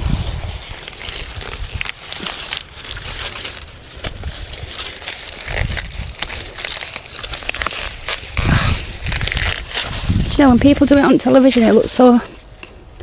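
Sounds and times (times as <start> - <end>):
dry corn plants rustling: 0.0 - 13.0
corn cobs snapping off stalks: 0.8 - 10.1.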